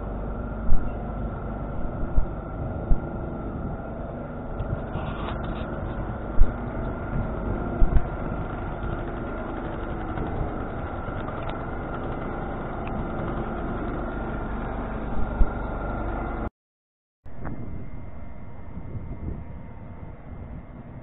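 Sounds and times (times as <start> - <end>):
train rumbling in motion: 0.0 - 16.5
low thumps: 1.7 - 3.9.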